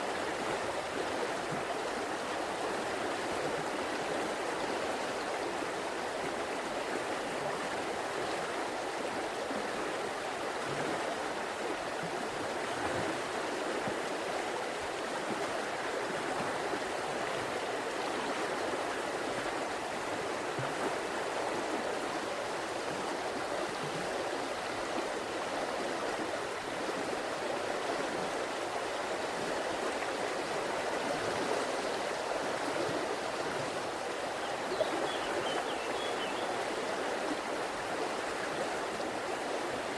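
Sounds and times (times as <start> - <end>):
river water babbling over rocks: 0.0 - 39.9.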